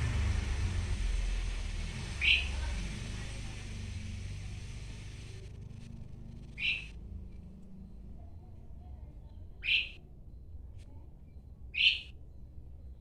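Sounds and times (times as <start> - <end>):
starling harsh calls: 0.0 - 5.6, 6.3 - 7.0, 9.6 - 10.0, 11.8 - 12.1.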